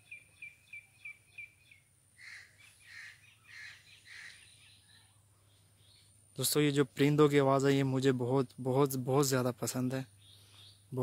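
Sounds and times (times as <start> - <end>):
high piping bird notes: 0.0 - 6.2, 9.8 - 11.0
harsh bird calls: 0.0 - 7.2, 9.2 - 11.0.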